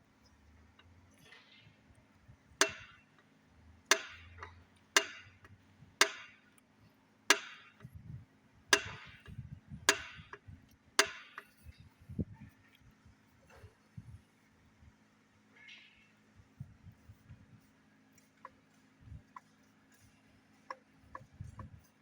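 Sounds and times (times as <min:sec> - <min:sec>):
hammer strikes ringing: 0:02.6 - 0:03.0.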